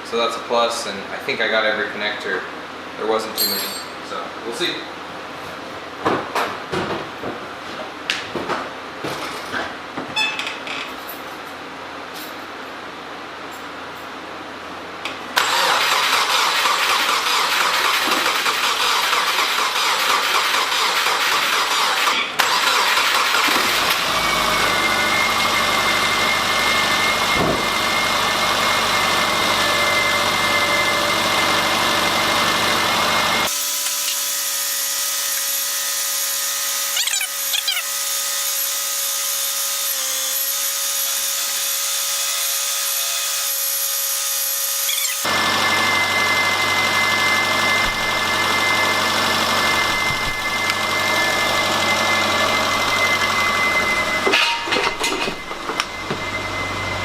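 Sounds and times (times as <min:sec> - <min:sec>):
car engine starting and running: 0:15.4 - 0:29.6, 0:44.9 - 0:54.3.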